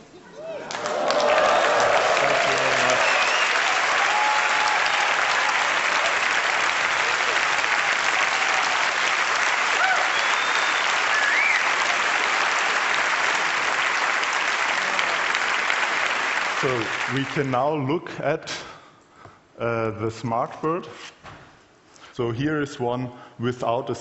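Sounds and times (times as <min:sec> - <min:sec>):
audience applauding: 0:00.4 - 0:17.8.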